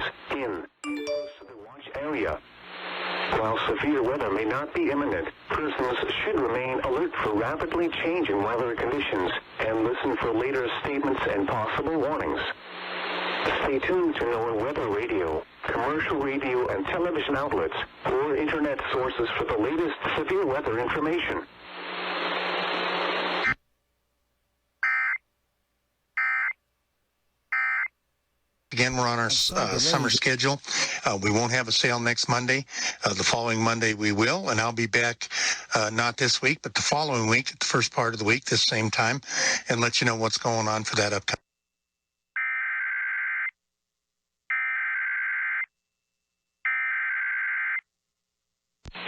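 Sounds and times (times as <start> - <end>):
radio hiss with low hum: 0.0 - 0.8, 1.6 - 23.6, 28.7 - 41.4.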